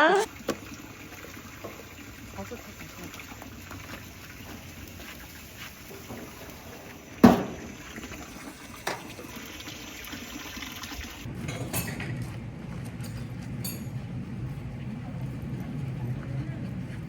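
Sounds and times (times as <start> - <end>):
water running: 0.0 - 11.3.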